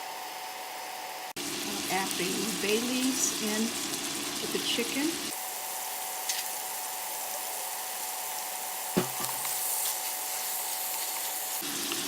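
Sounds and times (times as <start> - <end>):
chicken sizzling in a pan: 0.0 - 12.0
sharp knock: 9.0 - 9.5.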